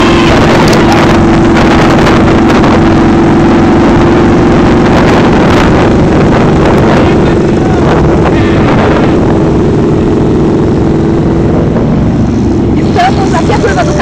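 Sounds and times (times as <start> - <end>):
motorcycle engine running: 0.0 - 14.0
wind noise on microphone: 0.0 - 14.0.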